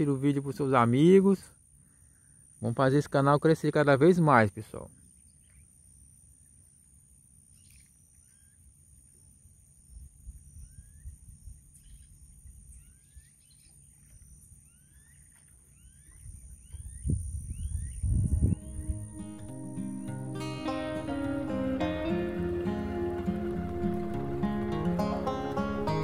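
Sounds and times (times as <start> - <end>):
faint rising bird chirps: 7.4 - 21.1
low rumble: 18.1 - 26.0.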